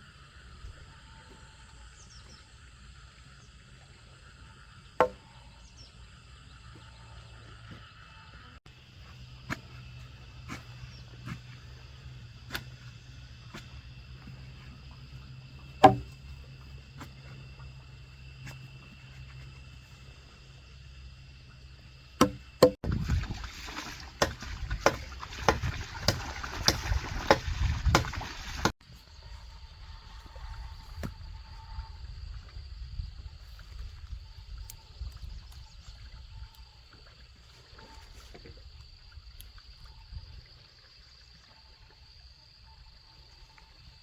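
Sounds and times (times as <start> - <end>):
blade chopping wood: 5.0 - 5.2, 9.5 - 9.8, 12.4 - 12.9, 15.8 - 16.2, 22.2 - 23.0, 24.2 - 28.7.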